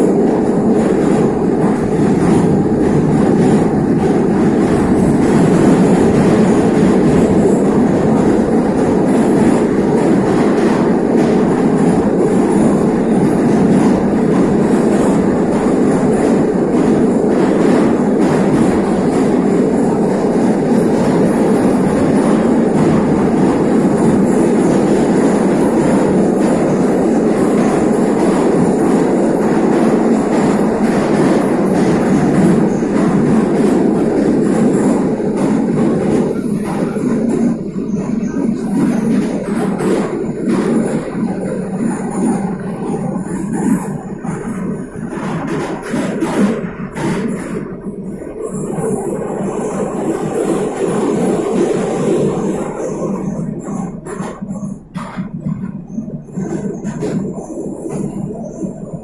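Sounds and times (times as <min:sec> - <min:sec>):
metro train rumbling in tunnel: 0:00.0 - 0:59.0.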